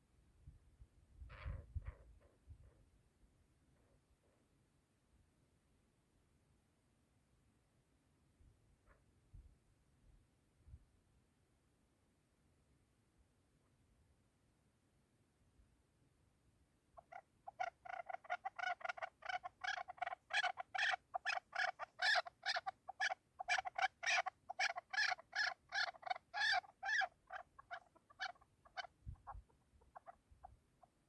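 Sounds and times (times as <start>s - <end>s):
partridge clucking calls: 17.0s - 31.0s.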